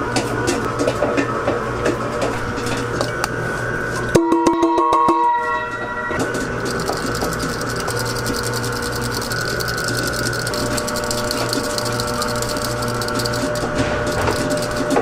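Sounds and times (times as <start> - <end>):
brief whirring tone: 4.1 - 15.0
machine humming: 5.7 - 15.0
rapid mechanical clicking: 6.2 - 15.0.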